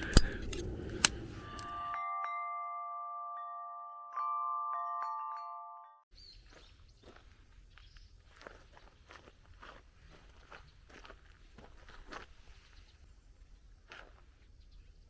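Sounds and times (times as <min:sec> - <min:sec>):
sharp clicks: 0:00.0 - 0:01.7
bell-like chime: 0:01.4 - 0:06.1.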